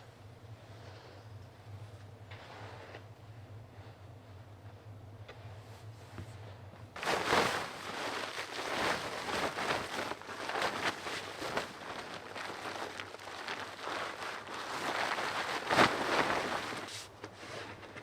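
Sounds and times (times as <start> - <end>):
scraping snow and ice: 7.0 - 17.8.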